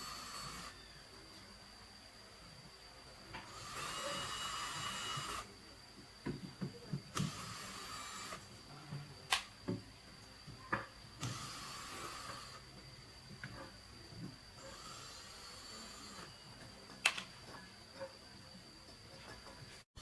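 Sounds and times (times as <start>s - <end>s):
power tool motor whirring: 0.0s - 0.8s, 3.4s - 5.5s, 7.1s - 8.5s, 11.2s - 12.6s
sharp clicks and knocks: 16.6s - 19.8s.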